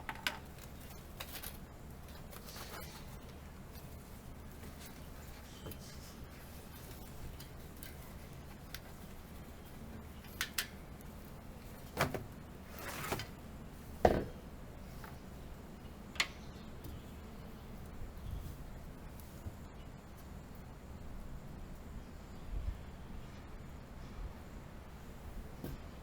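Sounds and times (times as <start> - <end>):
clicks and knocks of bicycle parts: 0.0 - 4.0, 6.7 - 9.2, 10.1 - 11.1, 16.1 - 17.0.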